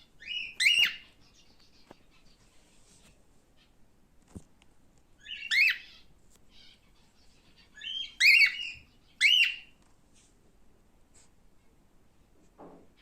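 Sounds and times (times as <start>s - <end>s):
cockatiel whistled chirps: 0.2s - 1.0s, 5.2s - 5.9s, 7.8s - 9.7s.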